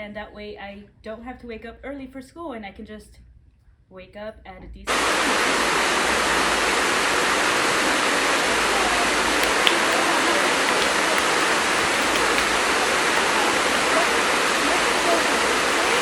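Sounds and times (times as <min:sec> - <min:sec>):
loud rushing hiss: 0:04.9 - 0:16.0.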